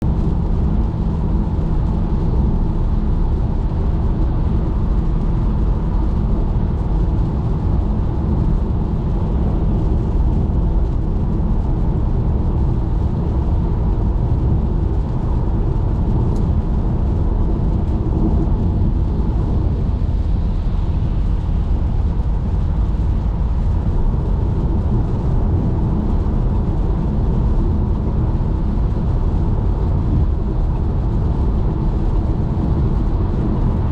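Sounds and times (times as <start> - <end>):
car driving on wet road: 0.0 - 33.9
rain: 0.0 - 33.9.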